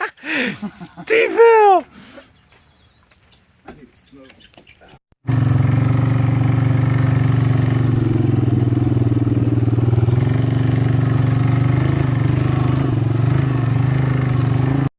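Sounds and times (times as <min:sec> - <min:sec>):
motorcycle engine running loudly: 0:05.2 - 0:14.9.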